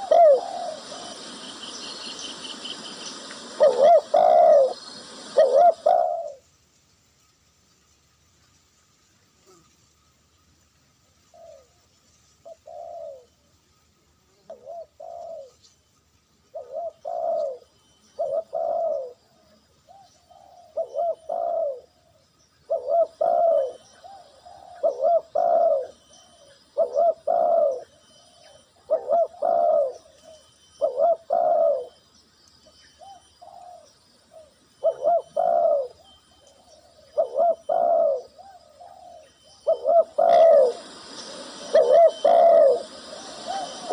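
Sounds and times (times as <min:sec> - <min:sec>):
dove cooing: 0:00.0 - 0:06.4, 0:12.4 - 0:13.3, 0:14.5 - 0:15.6, 0:16.5 - 0:32.0, 0:33.0 - 0:43.9.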